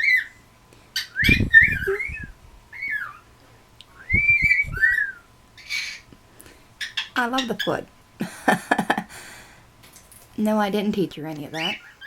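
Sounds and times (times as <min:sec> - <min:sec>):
cockatiel whistling: 0:00.0 - 0:00.4, 0:01.0 - 0:03.3, 0:04.0 - 0:06.0.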